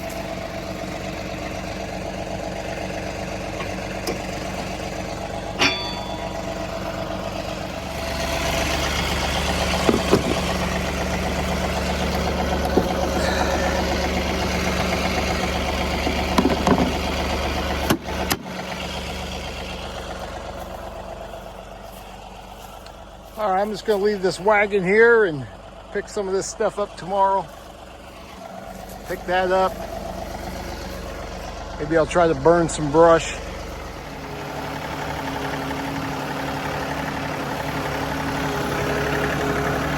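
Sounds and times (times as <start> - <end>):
tractor diesel engine running: 0.0 - 39.9
metallic clanks: 5.3 - 6.9.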